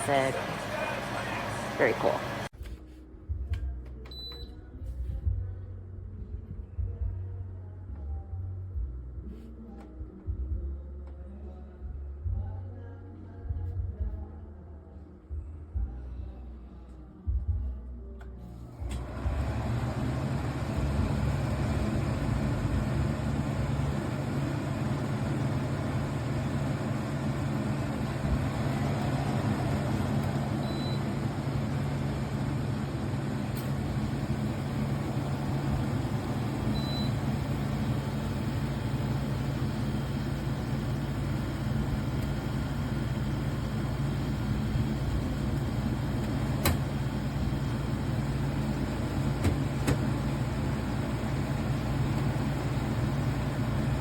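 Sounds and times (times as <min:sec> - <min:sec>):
air conditioner running: 0:00.0 - 0:54.0.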